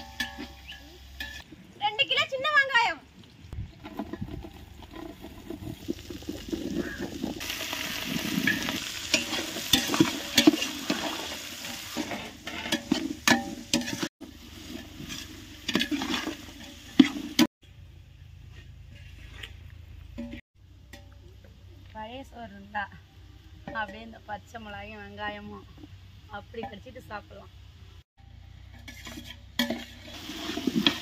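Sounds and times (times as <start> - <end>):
food sizzling in hot oil: 0.0 - 1.5, 2.5 - 17.5, 28.9 - 31.0
ladle stirring and scraping: 0.0 - 1.5, 3.5 - 17.5, 18.4 - 21.6, 28.6 - 31.0.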